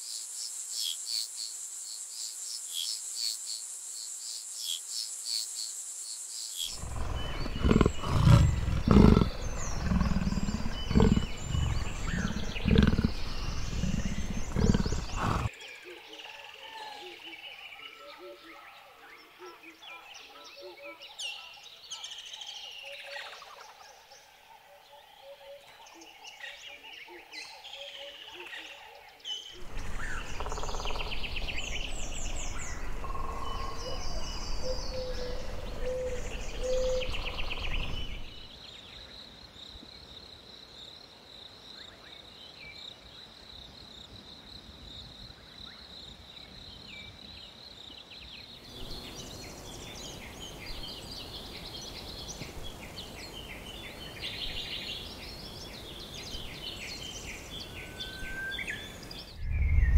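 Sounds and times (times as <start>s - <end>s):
birds chirping and calling: 6.7s - 15.5s, 29.6s - 38.4s
high insect whine: 29.6s - 38.5s
low rumble: 59.3s - 59.9s.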